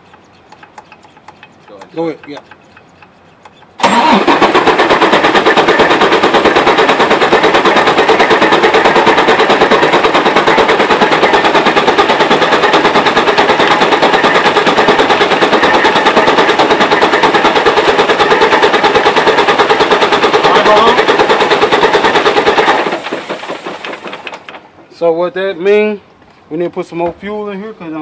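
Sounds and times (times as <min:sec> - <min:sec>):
diesel engine idling clatter: 0:00.0 - 0:24.9.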